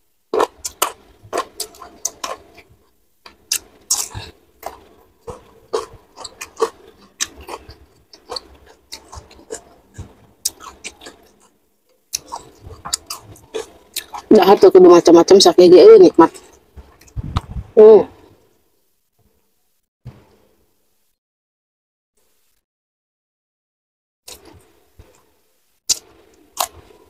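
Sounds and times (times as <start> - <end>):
chewing crispy food: 0.3 - 14.6, 25.9 - 27.0.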